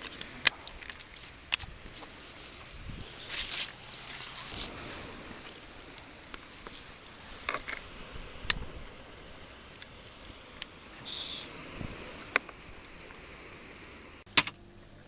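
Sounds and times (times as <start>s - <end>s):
handling rustles: 0.0s - 7.9s.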